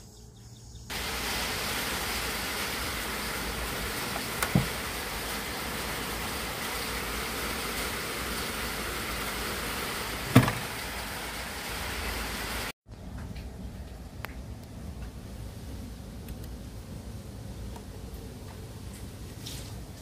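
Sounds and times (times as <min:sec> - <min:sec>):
speaker hiss: 0:00.9 - 0:12.7.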